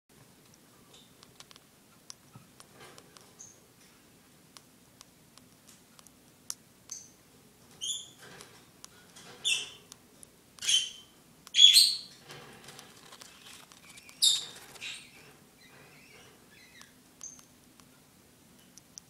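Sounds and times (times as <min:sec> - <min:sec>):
baby bird chirping: 0:10.6 - 0:12.1, 0:13.8 - 0:15.2, 0:16.0 - 0:17.5.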